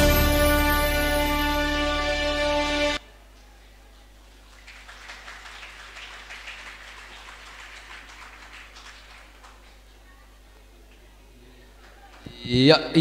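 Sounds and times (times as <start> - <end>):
audience applause: 4.4 - 10.0.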